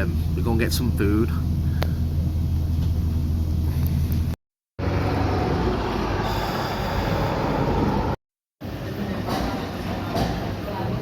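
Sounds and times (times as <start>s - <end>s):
vehicle ride hum: 0.0s - 9.0s
broad rumbling road noise: 0.0s - 11.0s.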